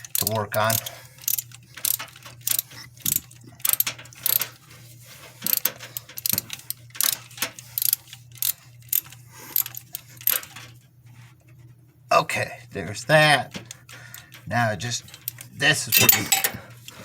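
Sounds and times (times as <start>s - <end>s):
ratchet wrench clicking: 0.0s - 4.6s, 5.4s - 10.6s, 15.0s - 16.6s.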